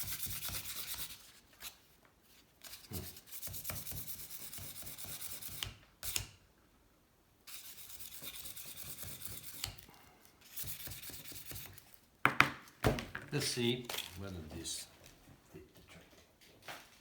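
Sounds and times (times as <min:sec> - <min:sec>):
sandpaper rubbing: 0:00.0 - 0:01.7, 0:07.5 - 0:09.8, 0:10.4 - 0:11.9
knocks: 0:12.3 - 0:13.3.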